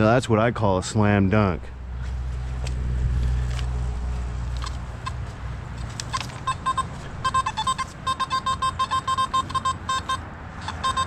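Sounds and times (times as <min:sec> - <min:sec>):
metal detector beeping: 0:05.0 - 0:05.4, 0:06.0 - 0:11.0.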